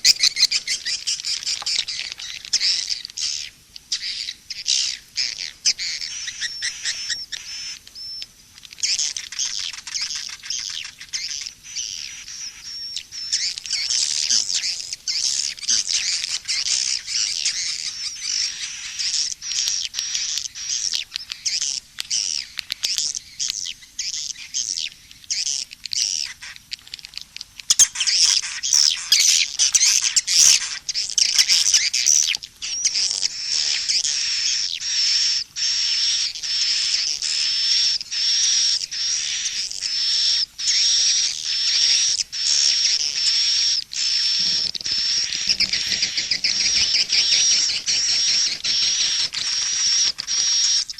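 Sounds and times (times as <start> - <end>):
swiftlets twittering: 44.0 - 50.9.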